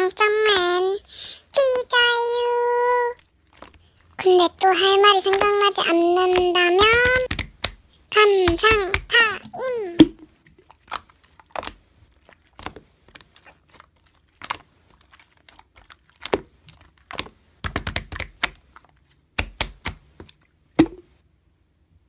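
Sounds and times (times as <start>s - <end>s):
slime squished and stretched: 3.2s - 7.9s, 9.9s - 20.9s
sharp pops and clicks: 4.7s - 11.0s.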